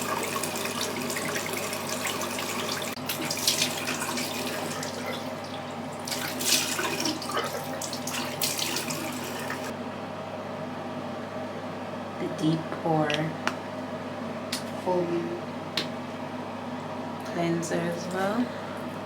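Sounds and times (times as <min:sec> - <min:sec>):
tap water running into sink: 0:00.0 - 0:09.7.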